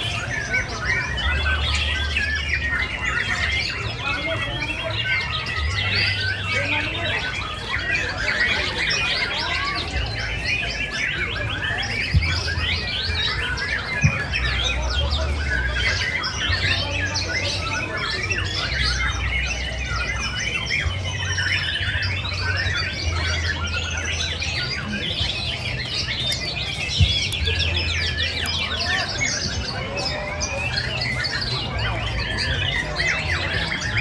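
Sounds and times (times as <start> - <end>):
songbirds chirping and trilling: 0.0 - 34.0.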